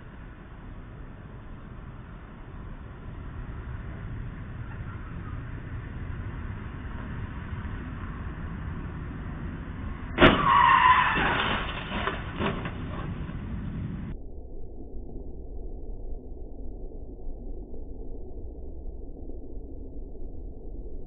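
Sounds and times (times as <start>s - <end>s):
car and truck crash: 0.0s - 14.1s
traffic noise: 0.0s - 14.2s
wreck knocking: 1.0s - 14.1s
metal crunching and scraping: 6.8s - 14.1s
tyre screech: 10.2s - 13.5s.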